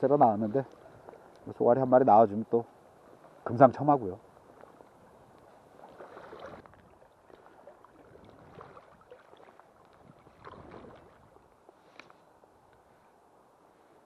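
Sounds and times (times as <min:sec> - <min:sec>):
water splashing against stones: 0:05.7 - 0:11.6.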